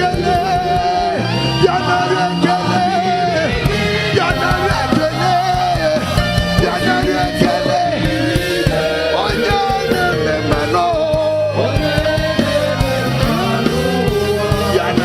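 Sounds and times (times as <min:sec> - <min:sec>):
band with bass and drums: 0:00.0 - 0:15.0
people singing worship music: 0:00.0 - 0:15.0.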